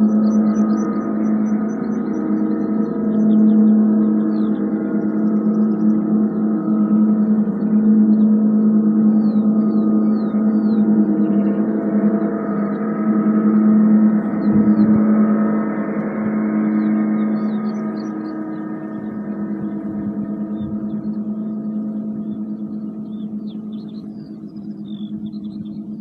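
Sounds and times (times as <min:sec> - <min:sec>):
gong ringing: 0:00.0 - 0:26.0
high bird chirps: 0:00.0 - 0:26.0.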